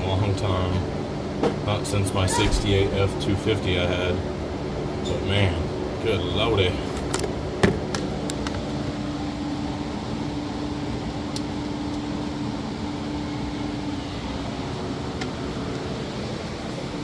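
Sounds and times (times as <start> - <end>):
rushing mechanical noise: 2.2 - 3.6.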